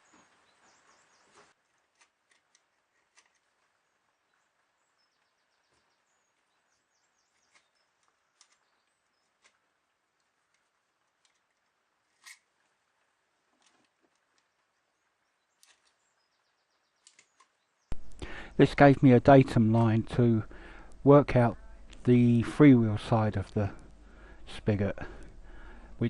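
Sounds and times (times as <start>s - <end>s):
faint background hiss: 0.0s - 26.0s
faint clicks: 16.9s - 18.6s.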